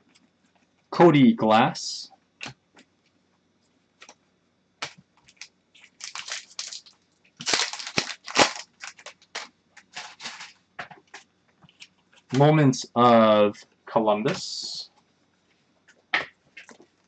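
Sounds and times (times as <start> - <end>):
trading cards clicking and rustling: 4.8 - 12.5, 15.9 - 16.9.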